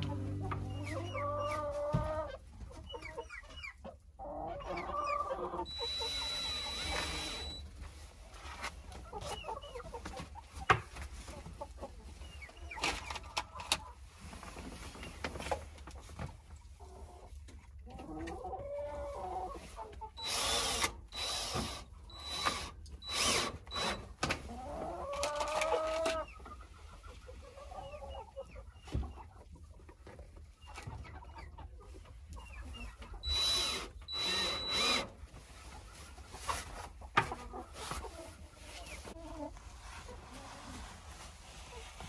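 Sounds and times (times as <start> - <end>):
hens clucking: 0.0 - 7.5, 8.8 - 14.1, 15.5 - 20.2, 24.4 - 41.0
power drill bursts: 5.7 - 7.6, 20.2 - 24.2, 33.2 - 35.1.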